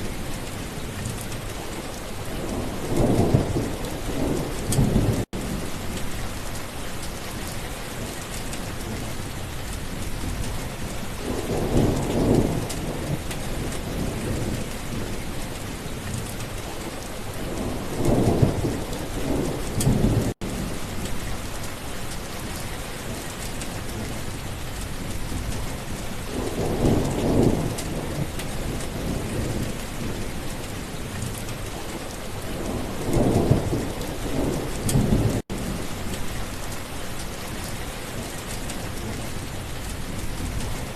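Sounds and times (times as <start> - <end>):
steady rain falling: 0.0 - 40.9
thunder rumbling: 2.4 - 6.4, 11.2 - 15.2, 26.3 - 30.8, 31.8 - 36.8.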